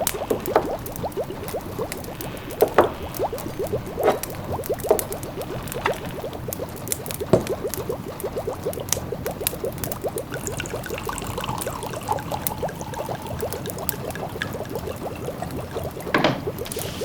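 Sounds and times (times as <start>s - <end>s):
pot of food simmering: 0.0s - 17.0s
wood fire crackling: 0.0s - 17.0s.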